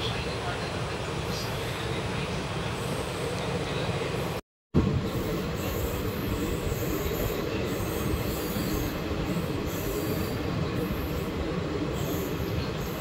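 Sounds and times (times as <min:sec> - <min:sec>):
train wheels on rails: 0:04.2 - 0:13.0.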